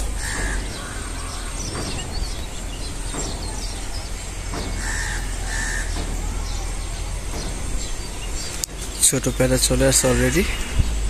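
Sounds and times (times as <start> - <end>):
bird harsh caw: 0.0 - 7.0, 9.8 - 11.0
high bird chirps: 0.0 - 11.0
low steady rumble: 0.0 - 11.0.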